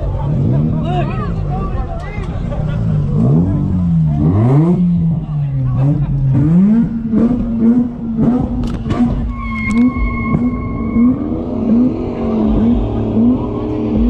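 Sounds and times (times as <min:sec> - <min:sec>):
car engine surging at high revs: 0:00.0 - 0:14.0
steady high tone: 0:09.3 - 0:14.0.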